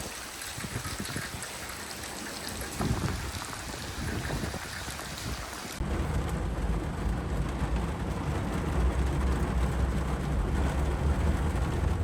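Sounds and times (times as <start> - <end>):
truck engine rumble from cab: 5.8 - 12.0.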